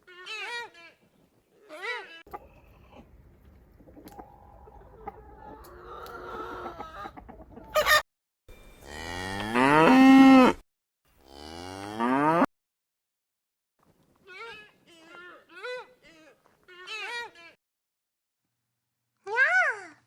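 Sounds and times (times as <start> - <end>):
cow mooing: 8.8 - 10.6, 11.2 - 12.5.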